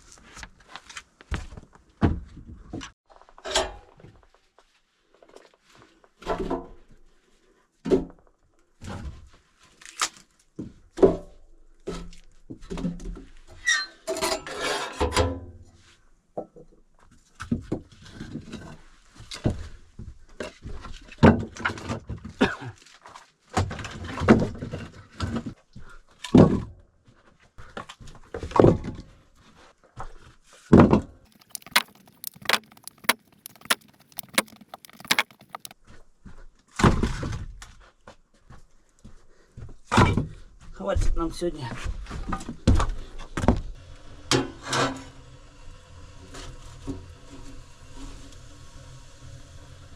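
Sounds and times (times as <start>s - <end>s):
firewood logs knocking: 31.3s - 35.7s.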